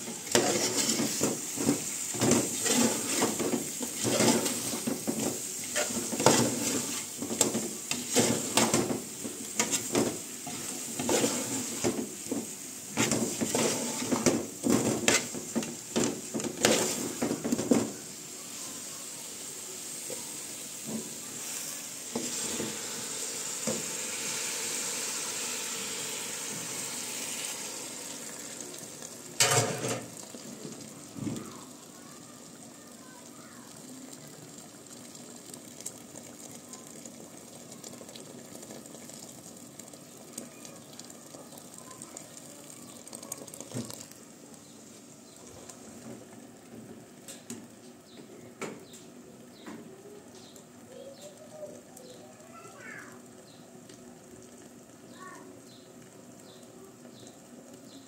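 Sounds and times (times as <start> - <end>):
water pouring into pot: 0.0 - 47.8, 50.6 - 58.0
chicken sizzling in a pot: 0.0 - 58.0.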